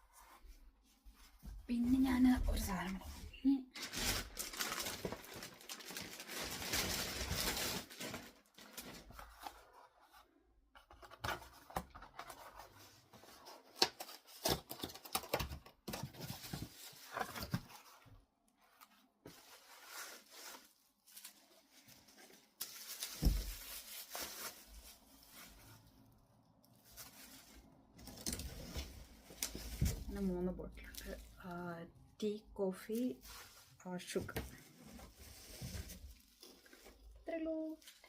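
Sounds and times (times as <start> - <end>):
packaging rustling and tearing: 3.8 - 9.9, 10.9 - 18.1, 19.3 - 31.4.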